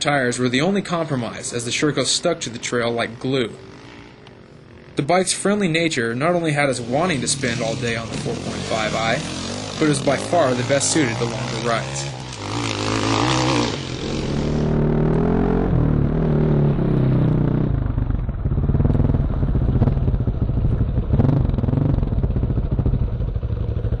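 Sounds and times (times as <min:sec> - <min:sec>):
dirt bike engine running: 0:00.2 - 0:24.0.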